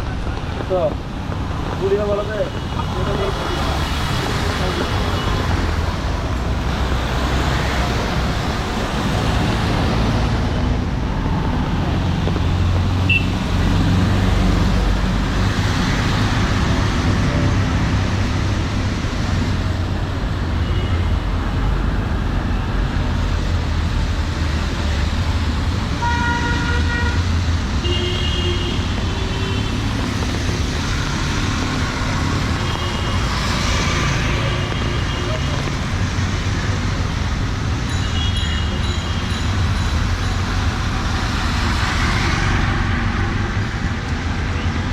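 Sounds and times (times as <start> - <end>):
traffic rumble: 0.0 - 44.9
vehicle horn toots: 26.0 - 27.2.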